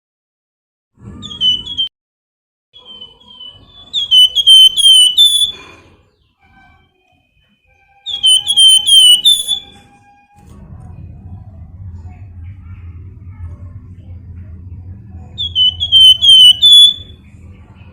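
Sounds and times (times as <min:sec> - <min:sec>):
songbird whistled notes: 0:01.2 - 0:01.9, 0:02.8 - 0:05.8, 0:08.0 - 0:10.0, 0:15.4 - 0:17.2.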